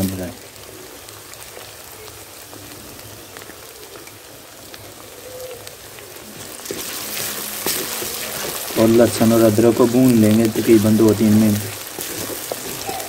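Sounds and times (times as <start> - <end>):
paste sizzling in hot ghee: 0.0 - 13.0
wooden spoon stirring: 5.8 - 13.0.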